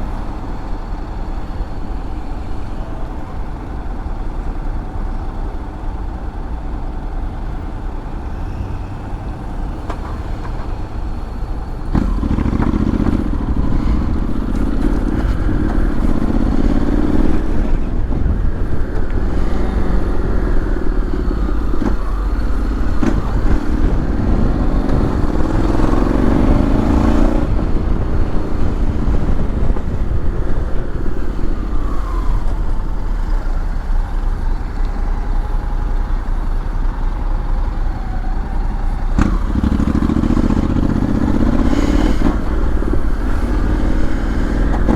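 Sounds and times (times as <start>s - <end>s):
scooter engine revving: 8.7s - 44.9s
wind rumble on microphone: 9.2s - 35.2s, 39.1s - 44.9s.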